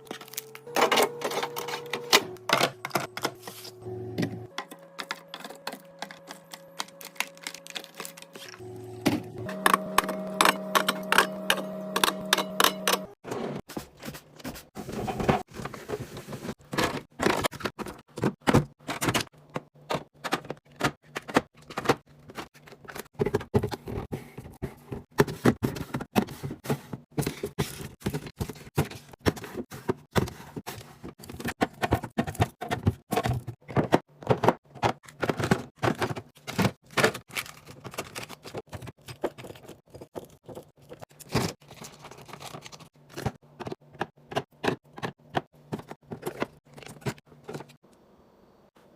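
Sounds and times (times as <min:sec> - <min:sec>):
food containers clicking and knocking: 0:15.1 - 0:47.8.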